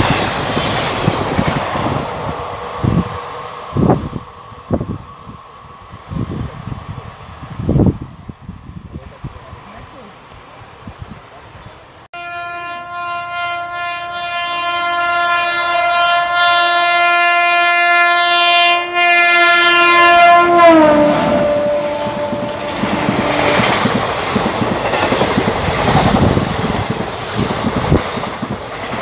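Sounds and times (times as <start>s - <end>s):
locomotive horn blast: 12.2s - 24.0s
wheels clacking over rail joints: 21.3s - 29.0s.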